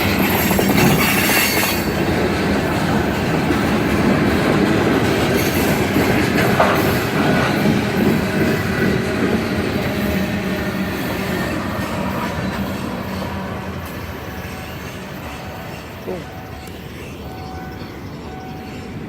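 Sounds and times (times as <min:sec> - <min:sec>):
railroad cars rolling past: 0:00.0 - 0:19.0
wheels clacking over rails: 0:00.0 - 0:19.0.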